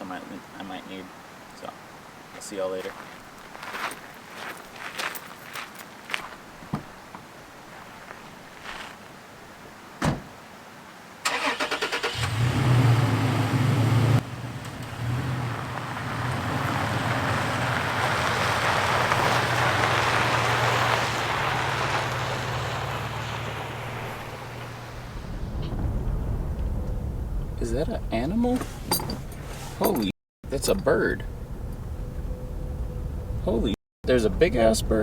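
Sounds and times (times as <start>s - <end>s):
thump: 10.0s - 10.3s, 25.2s - 27.4s
road and tyre noise: 11.2s - 35.0s
truck engine running: 12.3s - 27.6s.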